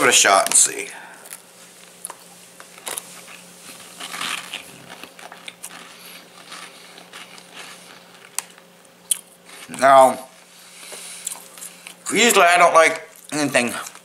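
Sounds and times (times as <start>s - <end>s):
man chewing crunchy snack: 1.2s - 9.8s, 10.8s - 12.0s.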